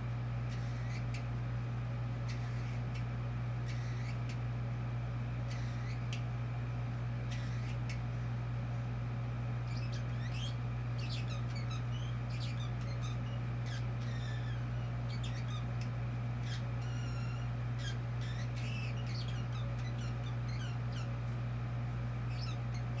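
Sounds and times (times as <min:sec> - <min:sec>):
steady low hum: 0:00.0 - 0:23.0
bird chirping and chattering: 0:00.5 - 0:01.3, 0:02.2 - 0:04.4, 0:05.4 - 0:06.2, 0:07.2 - 0:08.0, 0:09.6 - 0:21.4, 0:22.1 - 0:23.0.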